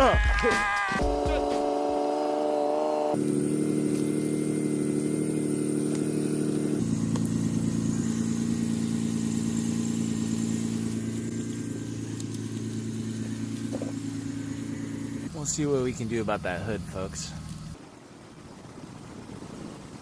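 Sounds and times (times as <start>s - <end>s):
car engine idling: 4.0s - 17.8s.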